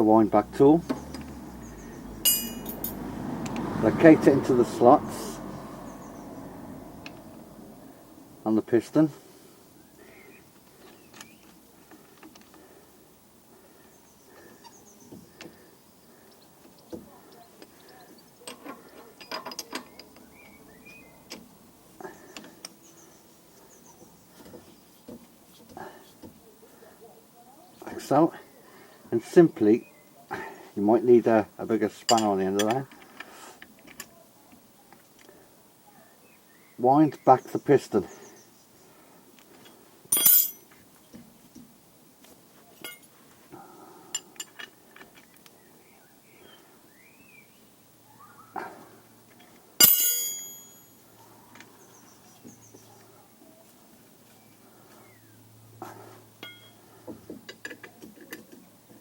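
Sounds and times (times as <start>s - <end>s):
metal tools clattering: 2.2s - 3.0s, 40.1s - 40.7s, 42.8s - 43.1s, 49.8s - 51.0s, 56.4s - 56.8s.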